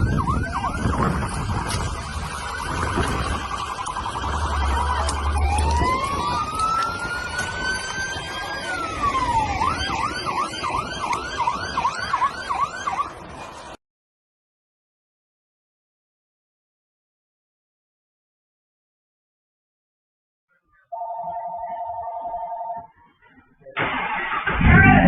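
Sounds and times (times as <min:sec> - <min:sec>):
electronic siren: 0:00.0 - 0:13.2, 0:20.9 - 0:22.9.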